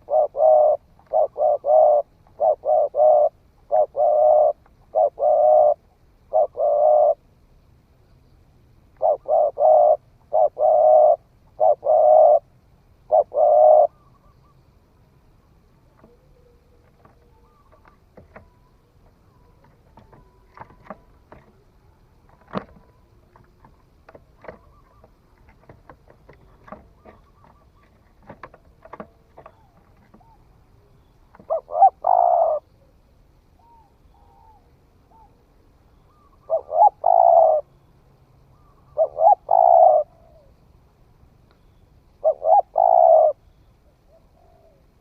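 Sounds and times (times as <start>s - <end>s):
dove cooing: 0.0s - 7.3s, 8.9s - 14.6s, 15.8s - 37.8s, 38.5s - 40.7s, 42.2s - 45.0s
faint scattered clicks: 15.7s - 31.5s, 41.4s - 41.8s.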